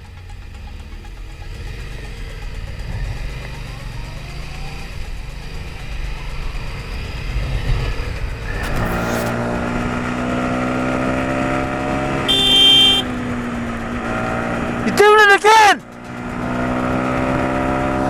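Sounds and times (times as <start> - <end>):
steady pitched vehicle tone: 0.0 - 16.4
engine rumble: 0.0 - 18.0
wind: 0.0 - 18.0
high-pitched horn beep: 12.2 - 13.2.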